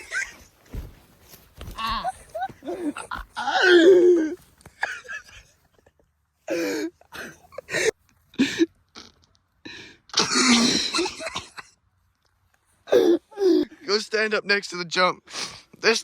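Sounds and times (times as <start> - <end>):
person coughing: 10.2 - 11.6.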